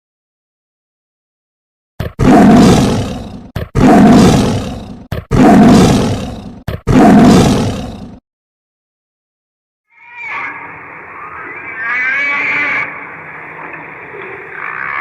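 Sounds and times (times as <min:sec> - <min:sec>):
large animal roaring: 0:02.0 - 0:08.2.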